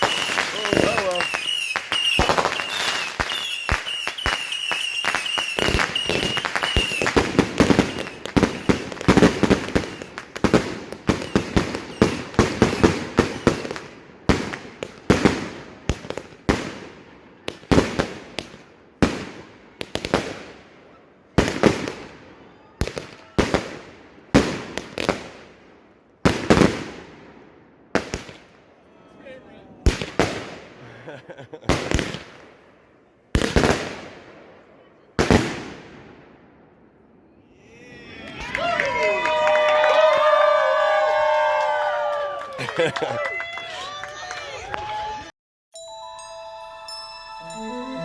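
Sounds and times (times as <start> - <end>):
fireworks whistle: 0.0 - 13.8
fireworks banging: 0.0 - 16.8.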